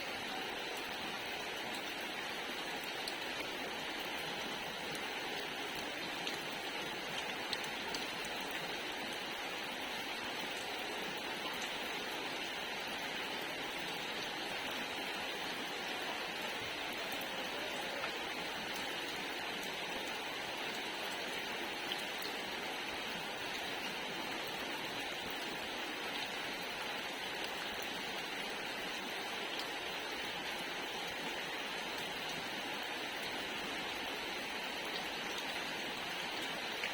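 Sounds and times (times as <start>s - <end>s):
rain pattering on surfaces: 0.0s - 36.9s
raindrop ticks: 7.1s - 8.1s.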